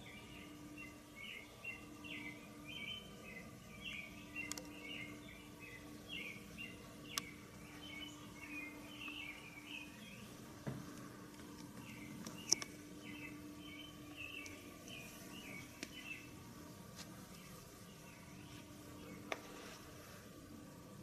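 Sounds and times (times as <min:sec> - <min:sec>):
bird chirping: 0:00.0 - 0:10.5, 0:11.6 - 0:19.6
low hum: 0:00.0 - 0:21.0
sharp clicks: 0:04.4 - 0:04.8, 0:07.1 - 0:07.4, 0:10.9 - 0:12.8.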